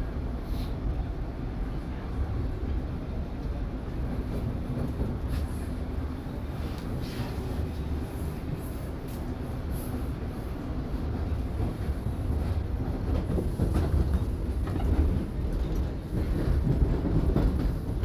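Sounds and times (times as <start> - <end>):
subway train rumble in tunnel: 0.0 - 18.0
rail clatter: 2.6 - 8.1, 11.0 - 18.0.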